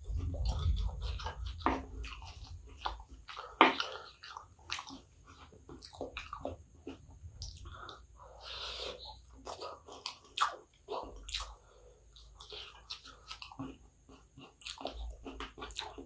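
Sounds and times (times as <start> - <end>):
low rumble: 0.0 - 3.1
wet chewing and mouth smacking: 0.0 - 16.0.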